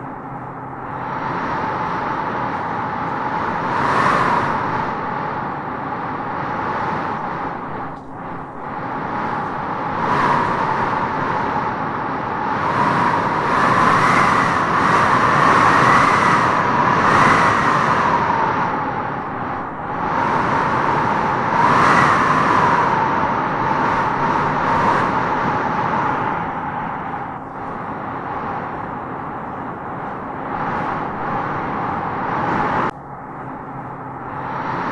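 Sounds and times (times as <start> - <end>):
strong gusting wind whistling: 0.0 - 34.9.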